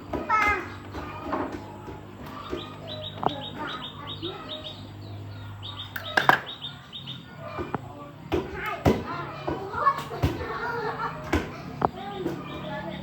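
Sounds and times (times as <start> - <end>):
high bird chirps: 2.4 - 7.4.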